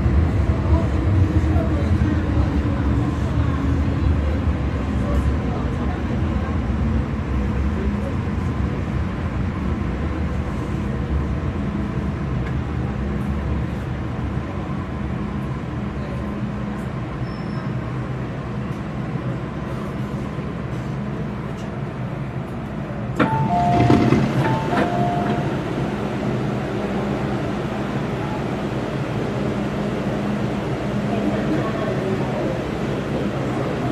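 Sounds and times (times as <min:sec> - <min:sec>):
train rumbling: 0:00.0 - 0:33.9
train clatter: 0:22.5 - 0:25.8.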